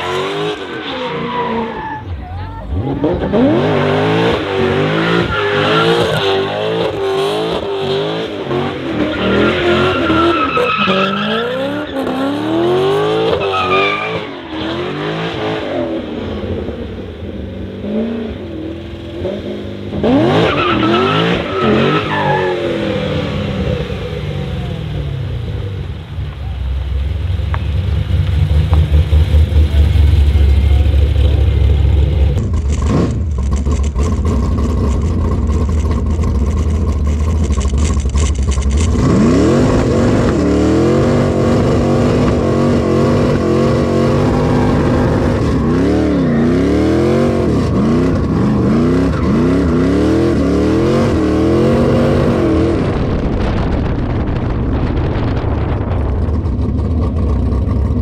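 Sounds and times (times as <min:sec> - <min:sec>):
race car engine revving: 0:00.0 - 0:17.0, 0:17.8 - 0:25.9, 0:27.2 - 0:58.0
heavy low rumble: 0:22.8 - 0:46.3, 0:50.9 - 0:58.0.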